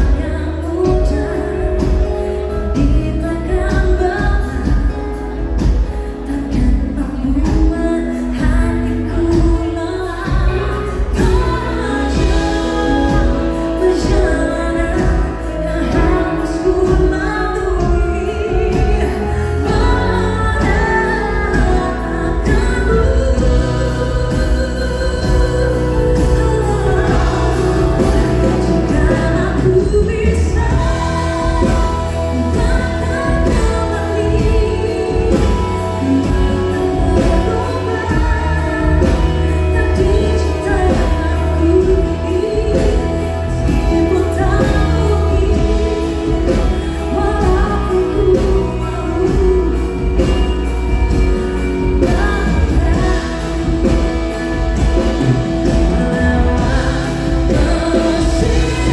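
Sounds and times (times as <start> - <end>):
bass guitar: 0.0 - 58.9
drums: 0.0 - 58.9
keyboards: 0.0 - 58.9
person singing lead vocals: 0.0 - 58.9.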